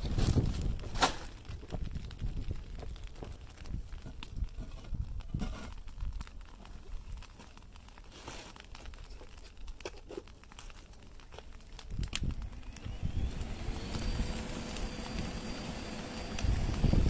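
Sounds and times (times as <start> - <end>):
crackles and clicks: 0.0 - 17.0
fan whining: 12.1 - 17.0
air rushing into furnace: 12.3 - 17.0.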